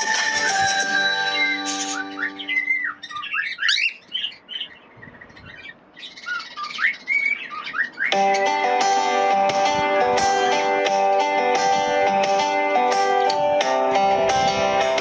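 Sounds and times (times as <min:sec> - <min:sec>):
birds calling: 0:00.1 - 0:10.8.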